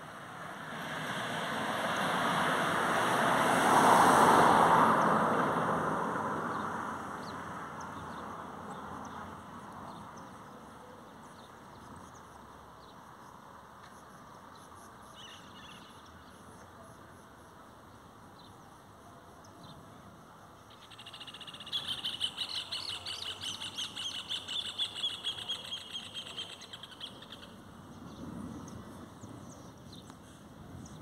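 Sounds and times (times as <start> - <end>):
faint bird chirps: 20.7 - 27.6.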